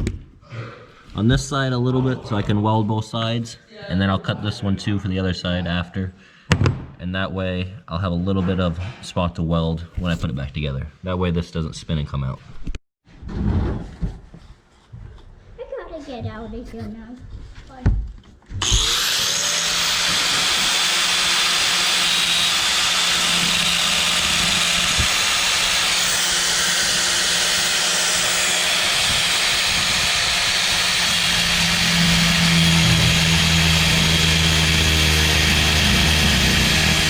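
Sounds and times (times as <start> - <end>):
metal-cutting power tool hissing: 18.6 - 37.0.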